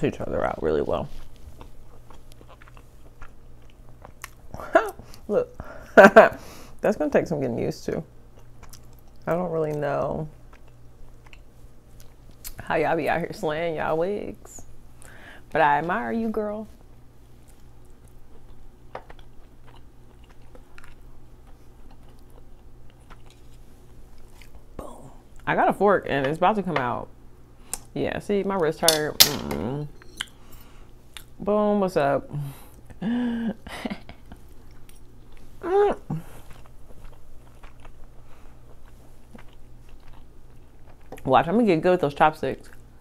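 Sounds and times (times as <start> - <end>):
low steady hum: 0.0 - 43.0
chewing soft food: 1.1 - 5.3, 8.3 - 12.6, 16.7 - 25.5, 30.2 - 31.4, 33.9 - 41.3, 42.6 - 43.0.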